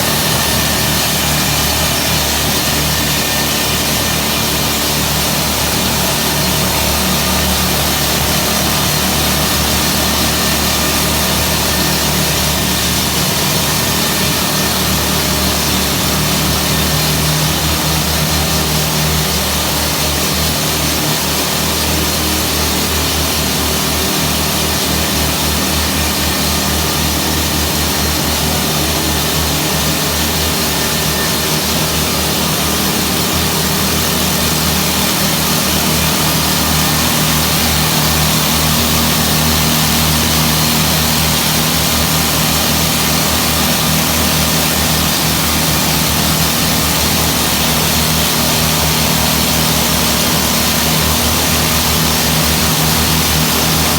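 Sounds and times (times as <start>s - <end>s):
engine drone: 0.0s - 53.9s
jackhammer clattering: 0.0s - 53.9s.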